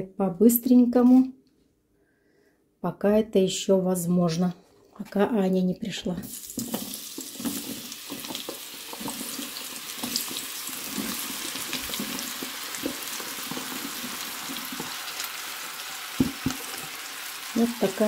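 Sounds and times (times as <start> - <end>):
oil crackles: 6.3 - 18.0
vegetables sizzling in hot oil: 6.3 - 18.0.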